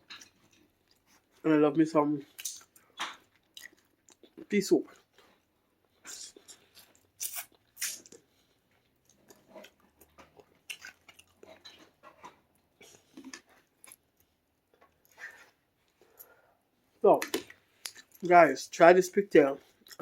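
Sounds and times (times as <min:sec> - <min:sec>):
person chewing food: 0:00.0 - 0:01.4, 0:02.3 - 0:16.5, 0:17.2 - 0:18.2, 0:19.6 - 0:20.0
wet mouth clicks and smacks: 0:02.4 - 0:04.4, 0:06.1 - 0:08.2, 0:17.2 - 0:18.2.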